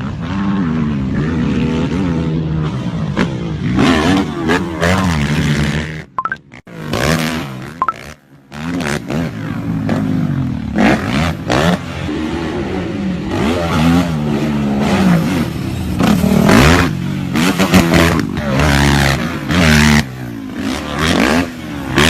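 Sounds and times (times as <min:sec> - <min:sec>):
quad engine revving: 0:00.0 - 0:06.1, 0:06.7 - 0:22.0.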